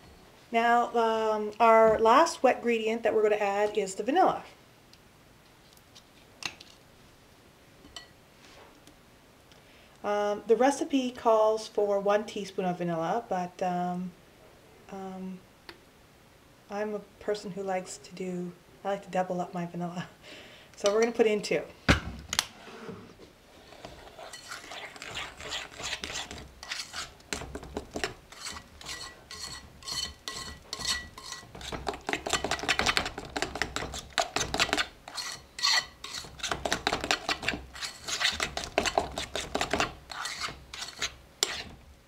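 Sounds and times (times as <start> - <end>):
utensil scraping mixing bowl: 22.6 - 41.8.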